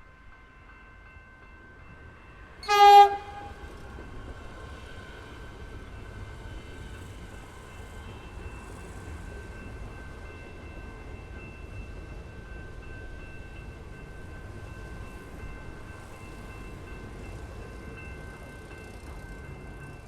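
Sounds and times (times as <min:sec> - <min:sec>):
train running noise: 0:00.2 - 0:20.0
train horn blast: 0:02.6 - 0:03.8.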